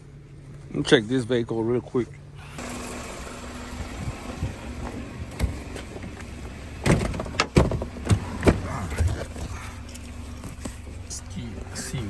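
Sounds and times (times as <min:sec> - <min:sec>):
low steady rumble: 0:00.0 - 0:12.0
car door clicks and thumps: 0:03.7 - 0:11.0.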